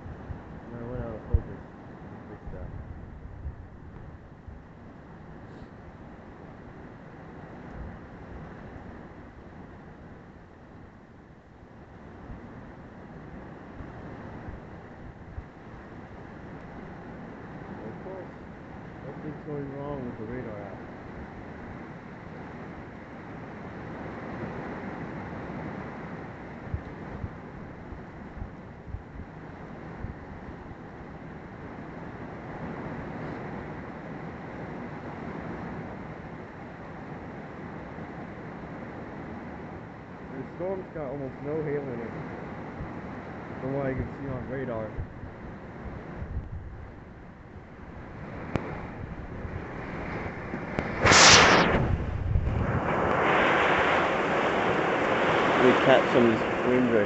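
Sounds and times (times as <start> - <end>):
wind buffeting microphone: 0.0 - 6.8, 23.7 - 33.8, 42.6 - 57.0
rain and strong wind: 0.0 - 57.0
heavy rain: 52.6 - 57.0.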